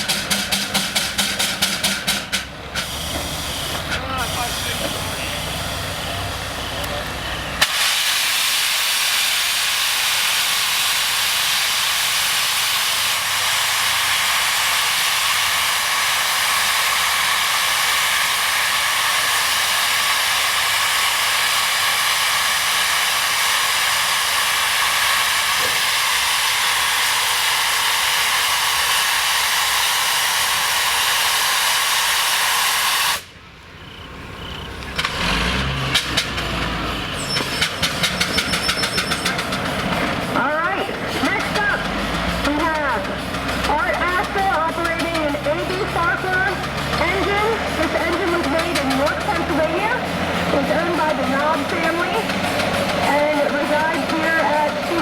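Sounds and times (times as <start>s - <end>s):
scattered knocks: 0.0s - 2.5s
steam hissing: 0.0s - 55.0s.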